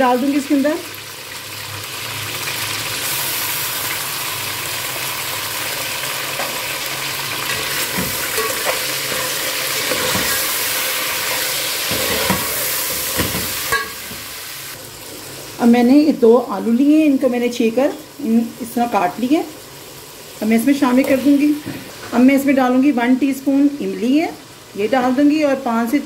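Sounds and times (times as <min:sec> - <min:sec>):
chicken frying hiss: 0:00.0 - 0:15.7.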